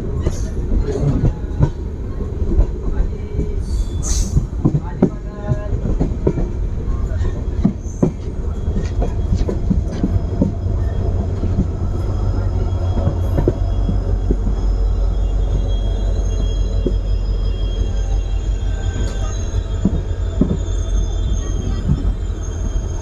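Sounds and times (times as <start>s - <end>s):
train rumbling: 0.0s - 23.0s
faint wheel squeal: 7.0s - 23.0s.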